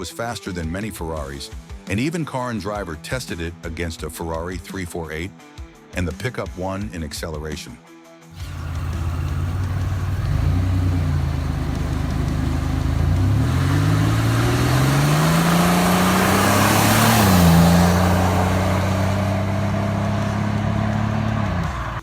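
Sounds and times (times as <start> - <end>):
car engine revving: 8.4 - 22.0.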